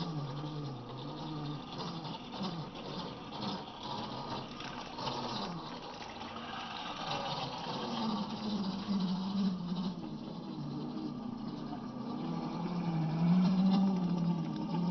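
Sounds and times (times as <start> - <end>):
electric toy truck motor whining: 0.0 - 14.9.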